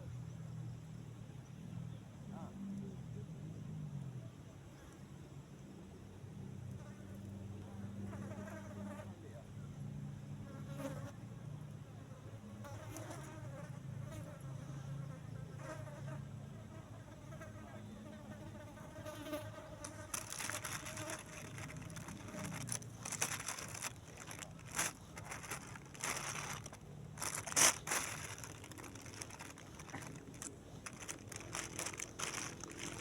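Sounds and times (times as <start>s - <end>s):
insect buzzing: 18.2s - 33.0s
rustling crinkling noises: 19.1s - 33.0s.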